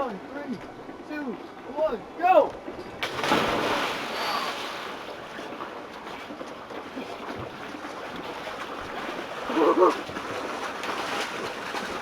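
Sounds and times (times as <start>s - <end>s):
water sloshing: 0.4s - 12.0s
person splashing into water: 3.0s - 5.2s.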